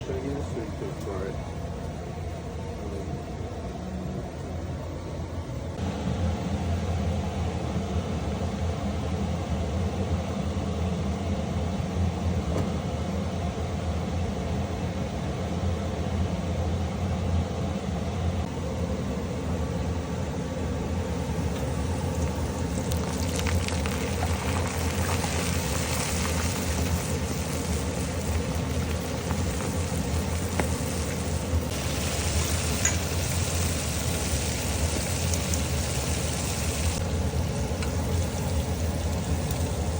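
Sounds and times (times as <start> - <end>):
steady low hum: 0.0 - 39.9
food sizzling in hot oil: 21.2 - 39.9.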